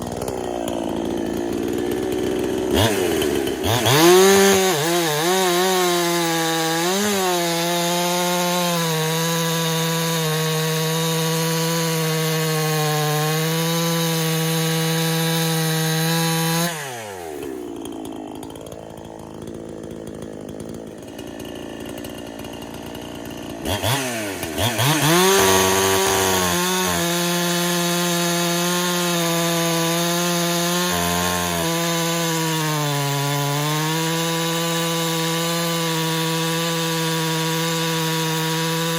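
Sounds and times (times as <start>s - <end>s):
chainsaw cutting wood: 0.0s - 38.9s
chainsaw idling: 0.0s - 38.9s.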